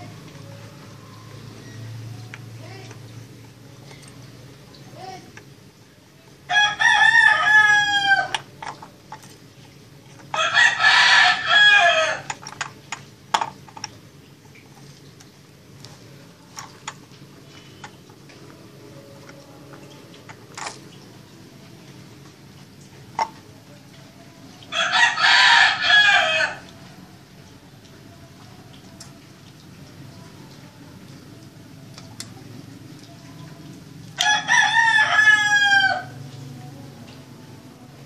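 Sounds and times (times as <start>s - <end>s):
rooster crowing: 6.5s - 8.5s, 10.3s - 12.4s, 24.7s - 26.7s, 34.2s - 36.2s.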